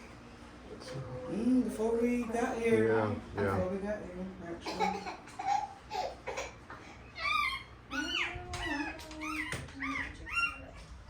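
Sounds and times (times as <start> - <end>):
puppy whining and squealing: 7.1 - 10.9.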